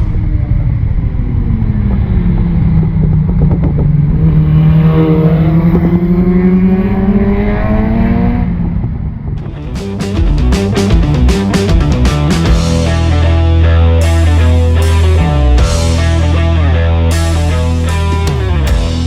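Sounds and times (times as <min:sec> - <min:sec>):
motorcycle engine running: 0:09.4 - 0:19.0.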